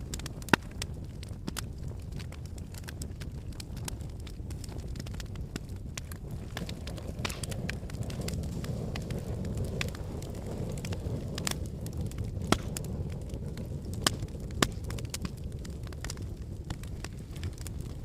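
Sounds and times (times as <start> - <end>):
fire popping: 0.0 - 18.0
fireplace fire crackling: 0.0 - 18.0.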